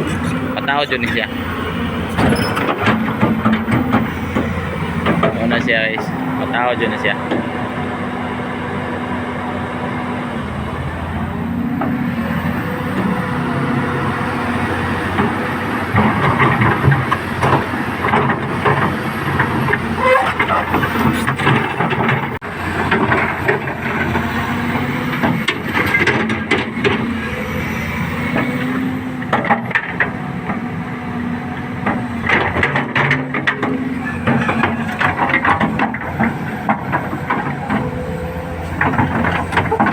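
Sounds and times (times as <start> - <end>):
engine idling: 0.0 - 25.2
metal knocks and clanks: 2.0 - 6.2, 15.1 - 24.3.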